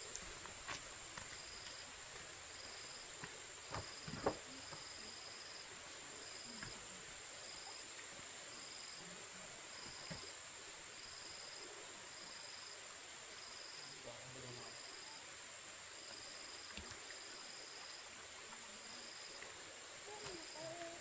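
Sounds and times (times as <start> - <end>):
insect chirping: 0.0 - 21.0
insects whining: 18.8 - 21.0.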